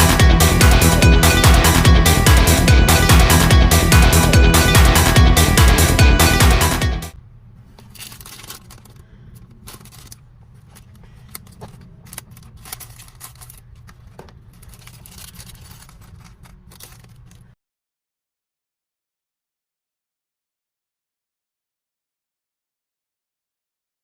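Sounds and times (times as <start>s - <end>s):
plastic parts clicking and rustling: 7.7s - 17.6s.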